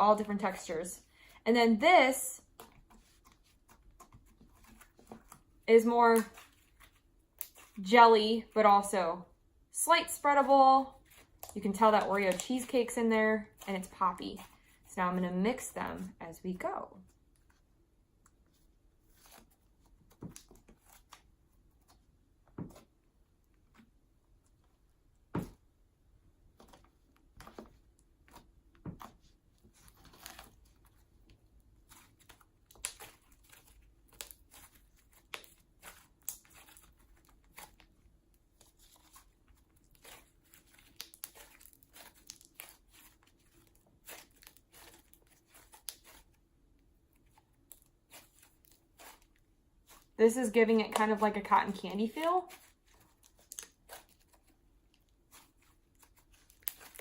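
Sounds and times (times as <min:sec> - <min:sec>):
slime popping and crackling: 0:38.6 - 0:46.3, 0:55.3 - 0:57.0.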